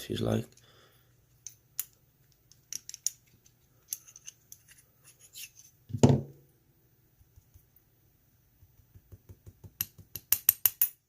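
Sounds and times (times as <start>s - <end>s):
small metallic clicks and scrapes: 1.3s - 5.8s
knock: 6.0s - 6.3s.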